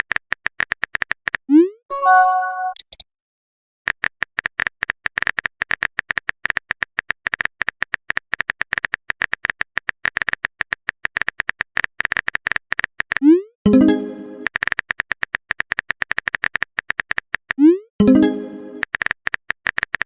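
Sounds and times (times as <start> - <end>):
keyboard typing clicks: 0.1 - 3.0.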